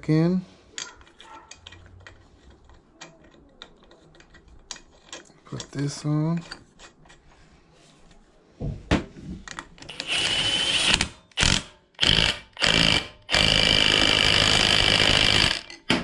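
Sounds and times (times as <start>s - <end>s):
power tool bursts: 9.9s - 16.0s.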